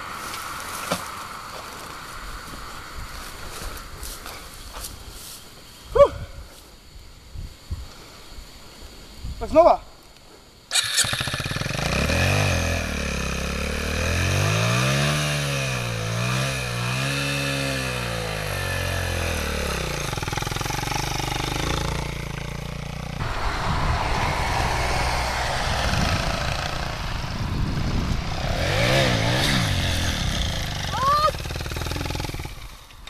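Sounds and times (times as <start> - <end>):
motorcycle engine revving: 10.7 - 33.0
rough engine drone: 10.8 - 33.0.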